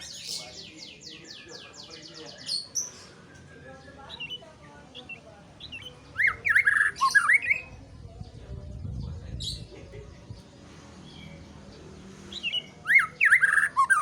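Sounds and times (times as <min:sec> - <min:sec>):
bird singing whistled notes: 0:05.0 - 0:07.8, 0:12.3 - 0:14.0.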